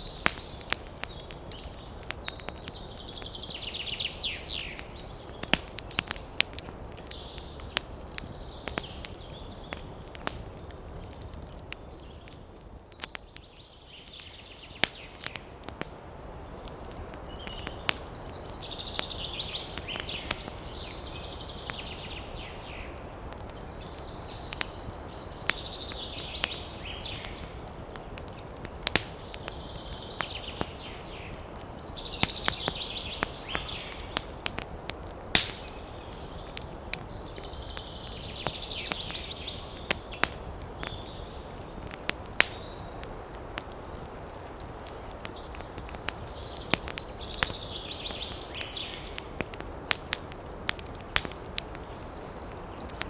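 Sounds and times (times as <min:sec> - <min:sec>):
campfire crackling and popping: 0:00.0 - 0:53.0
wind in trees: 0:00.0 - 0:53.0
chattering bird calls: 0:29.0 - 0:34.6.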